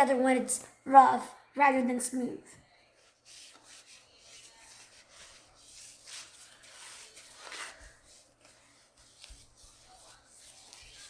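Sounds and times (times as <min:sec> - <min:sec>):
faint rubbing and handling: 0:02.7 - 0:11.0
soft scrapes: 0:02.9 - 0:11.0.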